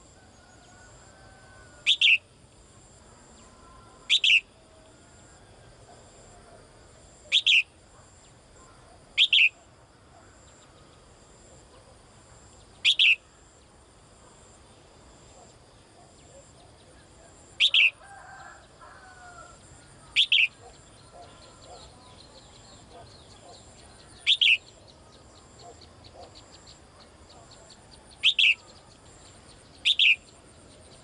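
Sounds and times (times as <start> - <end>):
songbird double chirps: 1.9 - 2.3, 4.1 - 4.5, 7.3 - 7.7, 9.2 - 9.6, 12.7 - 13.3, 17.6 - 18.0, 20.0 - 29.0, 29.6 - 31.0.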